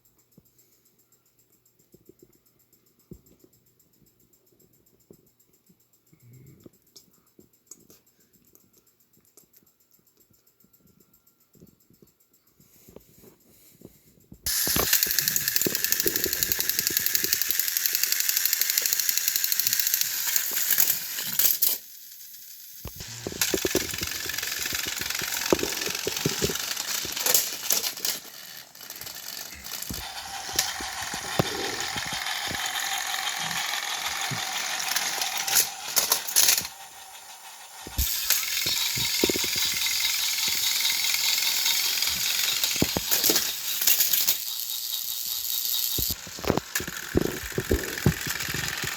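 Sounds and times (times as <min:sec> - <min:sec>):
toy train motor whirring: 0:14.4 - 0:48.9
wheels and gears rattling: 0:22.9 - 0:48.9.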